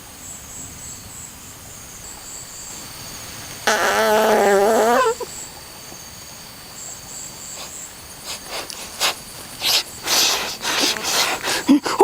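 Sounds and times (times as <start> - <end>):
insects chirping: 0.0 - 12.0
wavering pitched call: 3.6 - 5.5.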